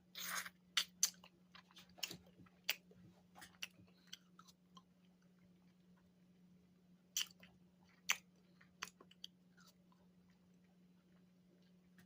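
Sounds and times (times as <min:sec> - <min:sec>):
crunchy chewing: 0:07.1 - 0:12.0.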